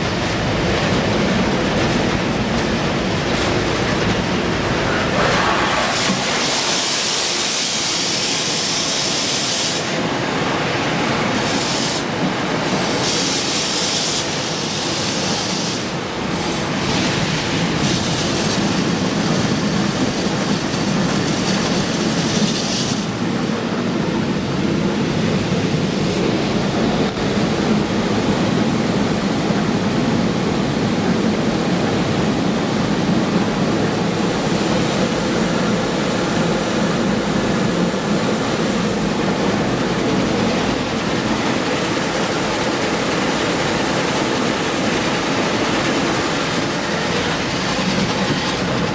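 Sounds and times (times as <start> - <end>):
wash machinery rumble: 0.0 - 7.8.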